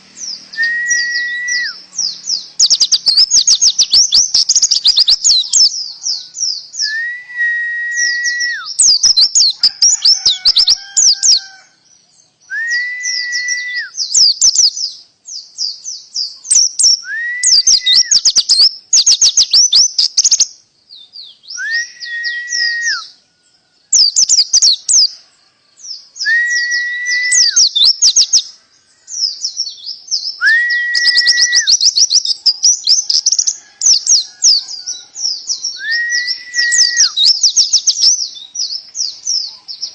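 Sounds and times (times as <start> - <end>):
songbird chirps and trills: 0.0 - 39.9
bird whistle held: 0.5 - 1.8, 6.8 - 11.6, 12.5 - 14.7, 16.5 - 20.4, 21.5 - 23.2, 26.2 - 28.4, 30.4 - 34.4, 35.7 - 38.1.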